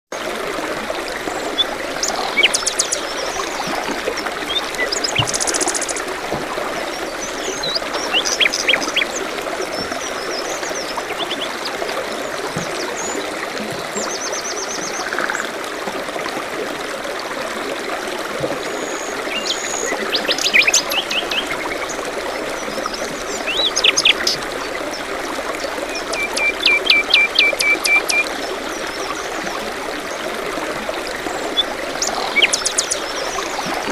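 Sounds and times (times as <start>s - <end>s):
stream trickling: 0.1s - 33.9s
songbirds chirping and trilling: 6.9s - 11.8s, 31.4s - 33.9s.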